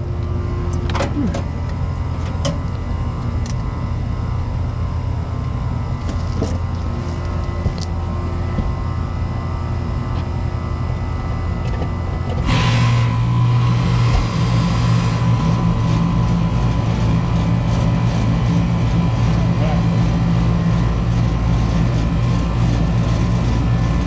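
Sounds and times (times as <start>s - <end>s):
air conditioner low hum: 0.0s - 24.0s
compressor electric hum: 0.0s - 24.0s.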